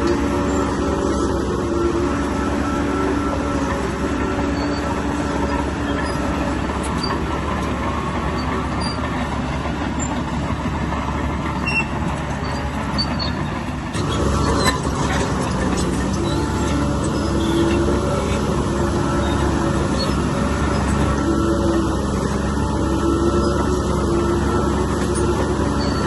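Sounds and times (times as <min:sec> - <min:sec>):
diesel engine rumble: 0:00.0 - 0:26.0.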